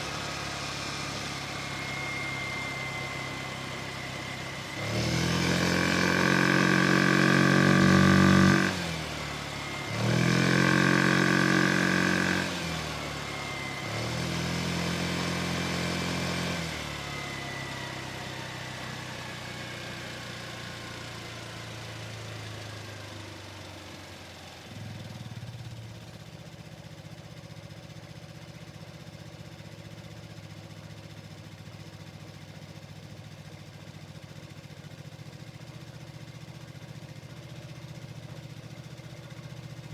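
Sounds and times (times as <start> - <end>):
scooter engine revving and idling: 0.0 - 39.9.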